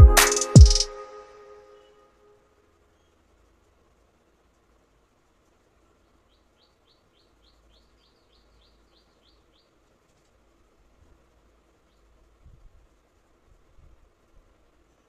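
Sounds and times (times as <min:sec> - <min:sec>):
bird chirping: 0:06.0 - 0:09.8.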